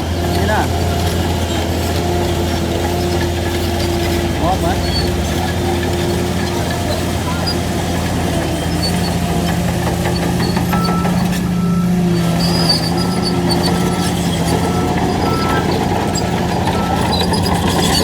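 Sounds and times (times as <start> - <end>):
diesel construction machine running: 0.0 - 18.0
reversing alarm beeps: 10.2 - 18.0.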